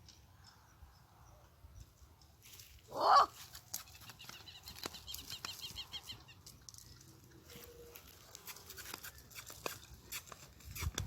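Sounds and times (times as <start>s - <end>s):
small bird chirping: 3.8s - 8.0s.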